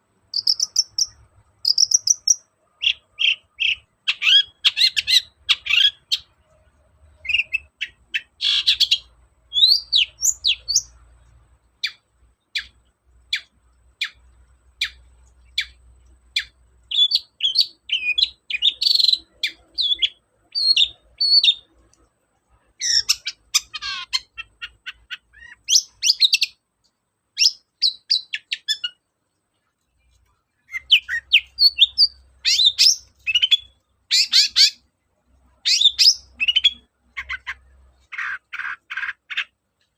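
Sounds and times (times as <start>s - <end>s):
bird chirping and whistling: 0.4s - 1.1s, 7.2s - 10.9s, 16.4s - 21.6s, 22.8s - 26.6s, 30.7s - 34.8s, 35.7s - 37.6s.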